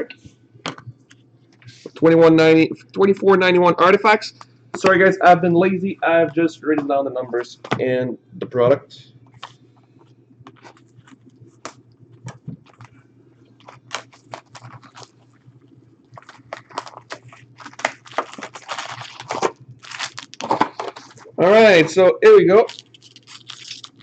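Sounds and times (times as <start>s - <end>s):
faint steady hum: 0.0s - 24.0s
cardboard packaging torn open: 13.6s - 15.1s, 16.2s - 21.3s, 22.6s - 24.0s.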